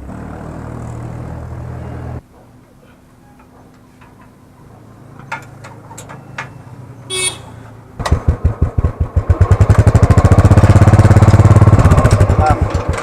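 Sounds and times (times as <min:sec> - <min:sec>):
motorcycle engine thumping: 0:08.0 - 0:13.0.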